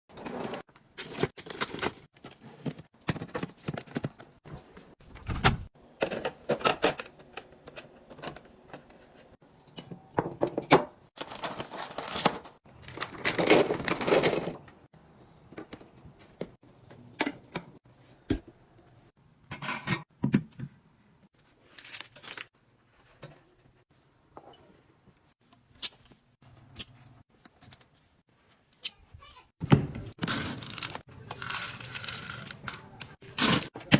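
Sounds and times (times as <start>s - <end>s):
groceries knocking and clattering: 0.1s - 18.6s, 29.6s - 33.9s
packaging rustling: 11.2s - 14.4s.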